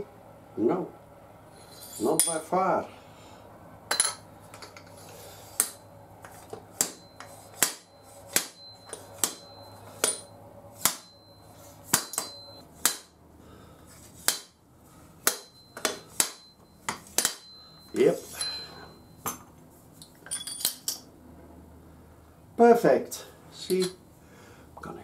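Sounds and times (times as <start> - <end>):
sharp metallic knocks: 6.8 - 13.2, 15.2 - 17.6.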